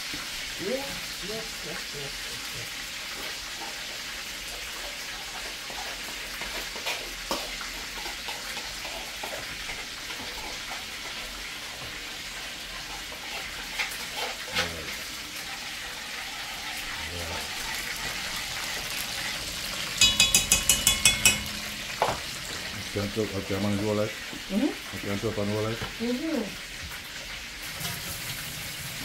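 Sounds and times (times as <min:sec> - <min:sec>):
chicken frying in oil: 0:00.0 - 0:29.0
kitchenware clicks and knocks: 0:19.9 - 0:22.3.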